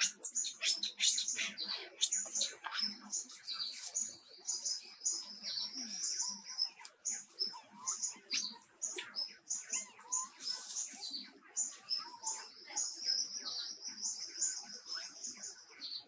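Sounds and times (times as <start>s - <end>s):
bird squeaks and whistling calls: 0.0s - 3.0s
birds chirping: 0.0s - 16.0s.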